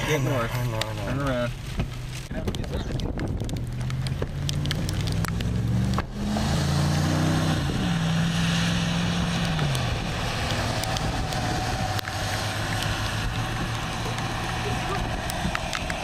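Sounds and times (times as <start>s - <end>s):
wind hiss: 6.1s - 16.0s
vehicle engine running: 9.0s - 16.0s.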